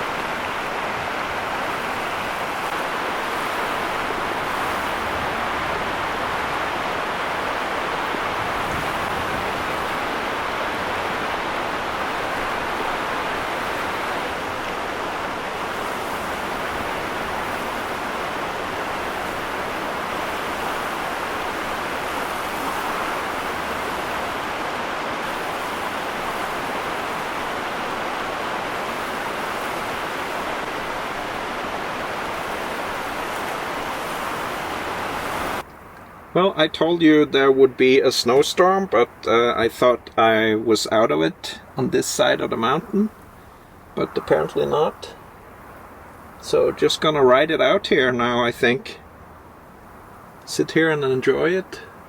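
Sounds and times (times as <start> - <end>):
snowstorm wind and driving snow: 0.0 - 35.6.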